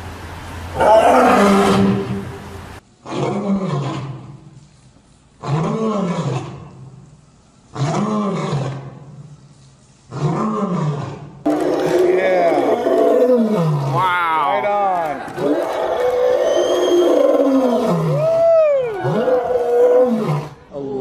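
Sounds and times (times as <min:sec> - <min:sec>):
animal roaring: 0:00.8 - 0:02.4, 0:03.0 - 0:04.4, 0:05.4 - 0:06.7, 0:07.8 - 0:09.0, 0:10.1 - 0:20.6.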